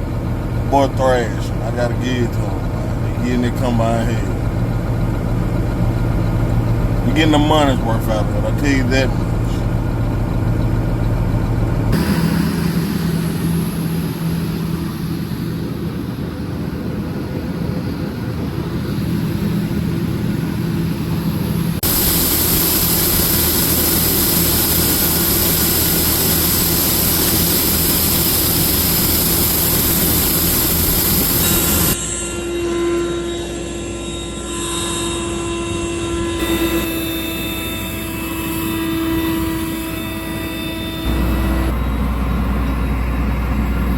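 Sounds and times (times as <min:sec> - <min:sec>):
heavy machinery engine hum: 0:00.0 - 0:32.0, 0:36.4 - 0:43.9
steady whining tones: 0:00.0 - 0:43.9
loud hiss: 0:21.8 - 0:32.0, 0:36.4 - 0:41.8.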